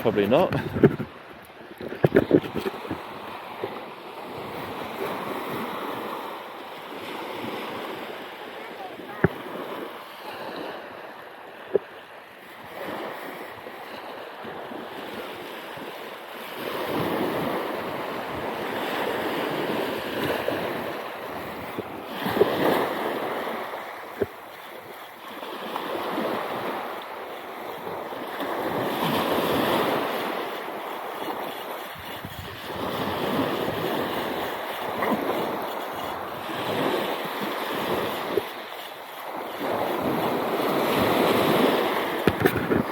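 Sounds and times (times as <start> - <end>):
wind on microphone: 0.0 - 6.3, 16.6 - 25.0, 27.7 - 42.9
sea waves breaking: 0.0 - 42.9.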